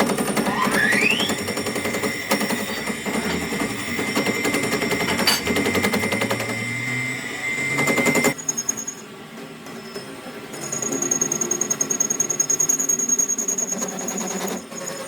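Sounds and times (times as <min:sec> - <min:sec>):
workshop machine rattling clatter: 0:00.0 - 0:06.8, 0:07.7 - 0:08.4
steady high whine: 0:00.0 - 0:09.1.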